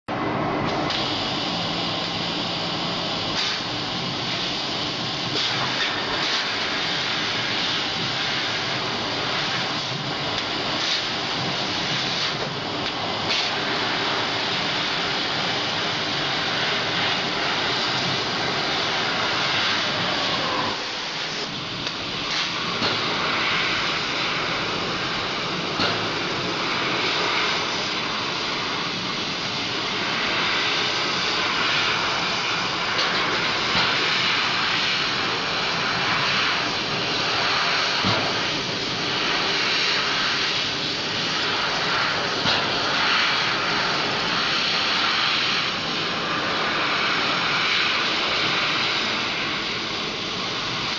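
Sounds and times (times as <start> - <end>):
laser cutter air hissing: 0.1 - 50.9.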